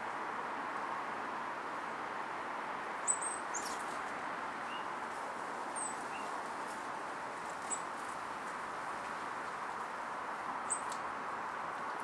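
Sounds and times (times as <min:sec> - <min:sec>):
steady background hiss: 0:00.0 - 0:12.0
small birds calling: 0:03.0 - 0:04.0, 0:05.7 - 0:06.4, 0:07.6 - 0:08.0, 0:10.6 - 0:11.0.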